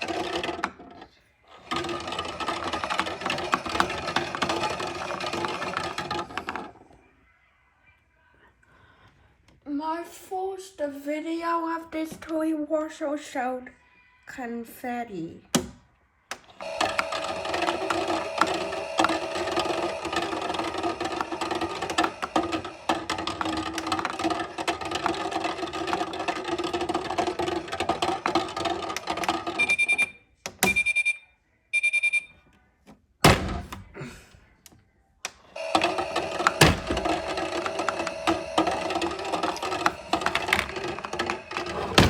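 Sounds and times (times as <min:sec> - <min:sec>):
small motor whirring: 0:16.6 - 0:25.1, 0:35.6 - 0:42.0
short electronic beeps: 0:29.6 - 0:31.2, 0:31.8 - 0:32.3.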